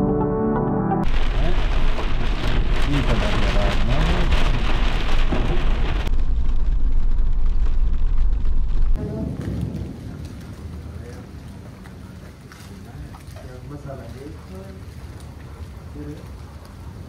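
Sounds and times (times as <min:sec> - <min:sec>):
deep rumble: 0:01.0 - 0:12.5
steady rain falling: 0:01.0 - 0:17.0.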